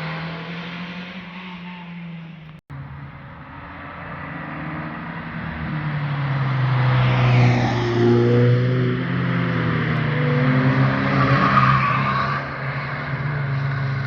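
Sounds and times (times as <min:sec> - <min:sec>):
car passing by: 0:03.4 - 0:12.7.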